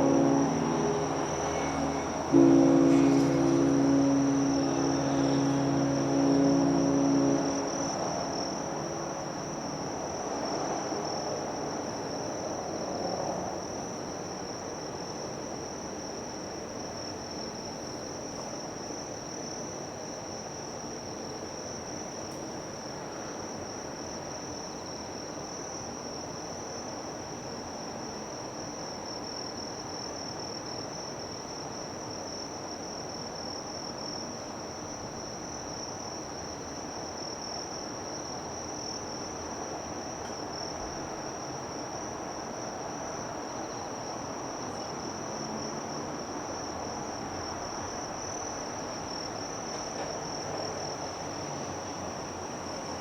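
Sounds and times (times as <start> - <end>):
broad mid-range sound: 0.0 - 8.8
low background noise: 0.0 - 11.9.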